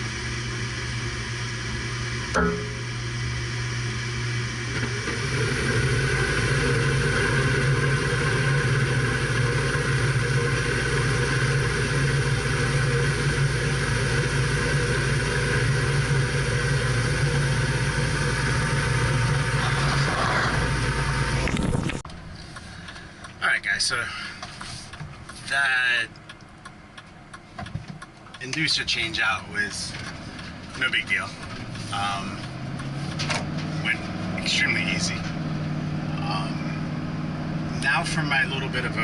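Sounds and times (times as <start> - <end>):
fan motor humming and whirring: 0.0 - 25.4.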